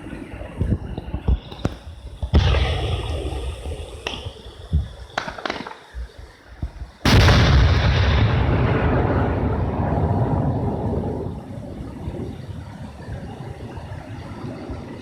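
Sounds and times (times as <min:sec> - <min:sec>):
firework cracks: 0:01.1 - 0:11.5
firework boom rumbling: 0:01.6 - 0:12.4.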